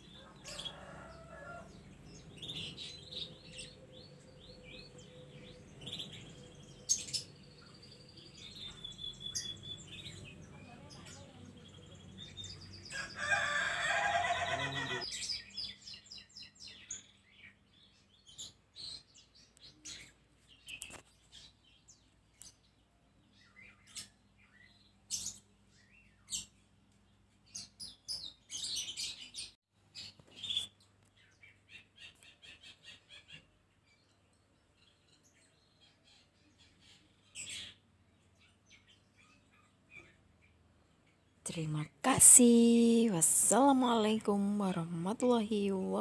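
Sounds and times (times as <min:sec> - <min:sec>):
birds chirping: 0:00.0 - 0:26.7.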